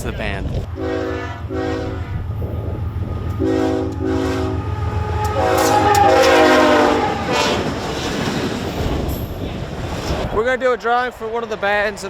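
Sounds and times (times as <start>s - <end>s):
train rumbling: 0.0s - 12.0s
train horn blasts: 0.7s - 2.6s, 3.2s - 7.8s.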